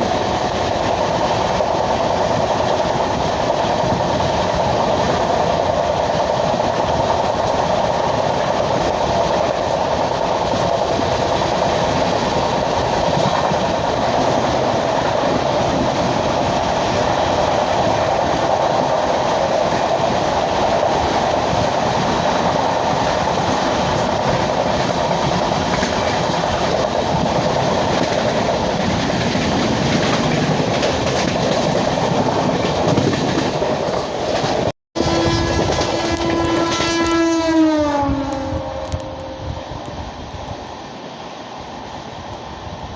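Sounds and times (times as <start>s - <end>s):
clickety-clack of rail joints: 0.0s - 40.0s
train wheels rumbling on rails: 0.0s - 42.9s.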